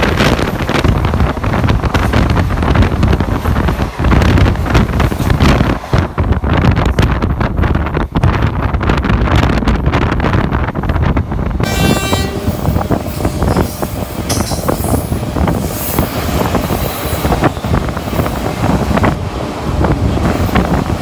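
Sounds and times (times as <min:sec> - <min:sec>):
passing train rushing: 0:00.0 - 0:21.0
train wheel clatter: 0:00.0 - 0:21.0
locomotive horn: 0:11.6 - 0:13.9.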